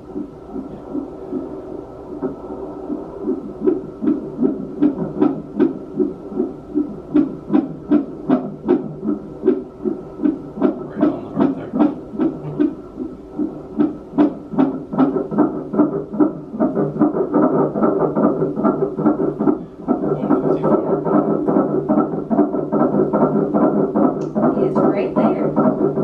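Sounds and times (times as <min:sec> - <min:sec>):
fetal heartbeat on doppler: 0:00.0 - 0:26.0
steady hum: 0:00.0 - 0:26.0.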